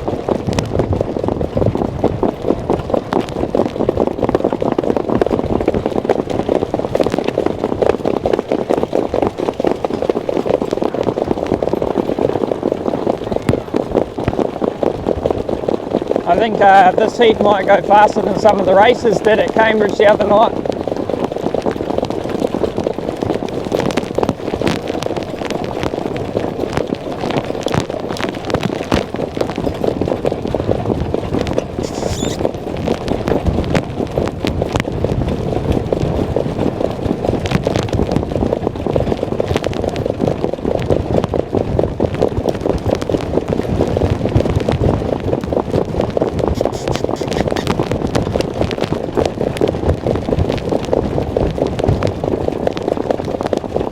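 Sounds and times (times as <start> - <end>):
horse hoofbeats: 0.0 - 53.9
wind noise on microphone: 0.0 - 53.9.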